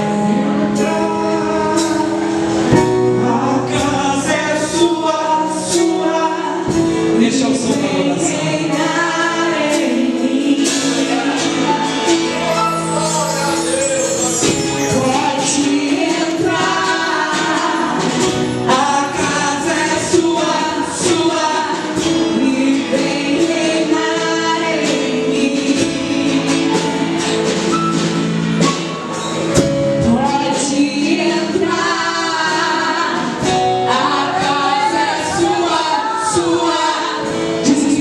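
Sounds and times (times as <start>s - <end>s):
person singing: 0.0s - 27.5s
held chords: 6.7s - 36.6s.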